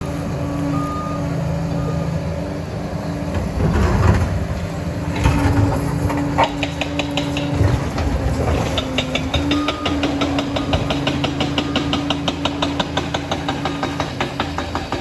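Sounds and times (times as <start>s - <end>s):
dozer diesel engine running: 0.0s - 15.0s.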